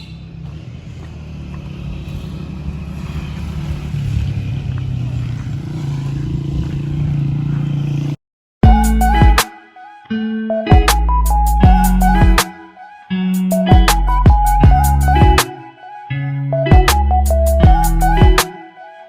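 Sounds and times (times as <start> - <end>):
motorcycle engine rumbling: 0.0 - 8.2.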